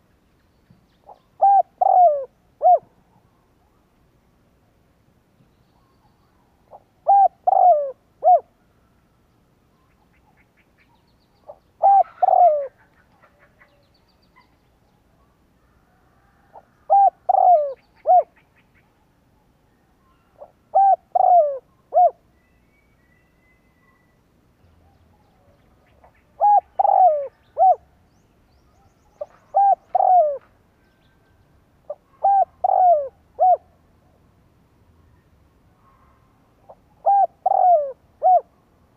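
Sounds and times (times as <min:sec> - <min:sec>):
dove cooing: 0:01.0 - 0:02.9, 0:06.7 - 0:08.5, 0:11.5 - 0:13.7, 0:16.4 - 0:18.6, 0:20.4 - 0:22.2, 0:25.9 - 0:27.9, 0:29.2 - 0:30.6, 0:31.9 - 0:33.7, 0:36.7 - 0:38.5.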